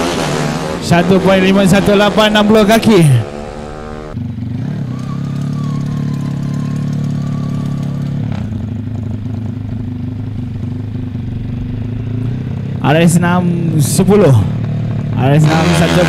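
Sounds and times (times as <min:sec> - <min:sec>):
motorcycle engine revving: 0:00.0 - 0:16.0
motorcycle engine idling: 0:03.2 - 0:15.4.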